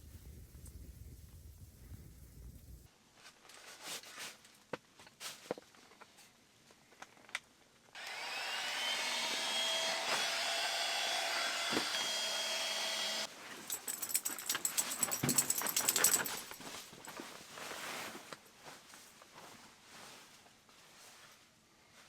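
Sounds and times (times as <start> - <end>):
electric blower whirring: 8.0 - 13.3.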